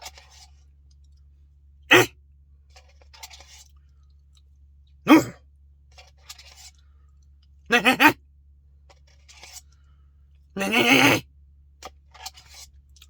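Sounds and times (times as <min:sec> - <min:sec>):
person making throat sounds: 0:01.9 - 0:02.1, 0:05.1 - 0:05.4, 0:07.7 - 0:08.2, 0:10.6 - 0:11.2.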